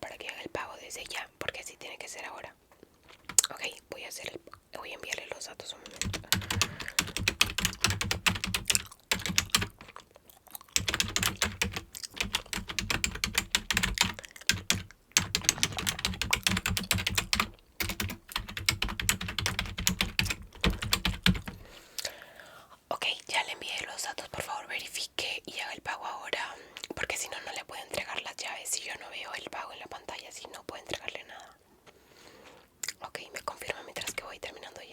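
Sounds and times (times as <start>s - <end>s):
fast typing on keyboard: 5.8s - 10.0s, 10.8s - 21.7s.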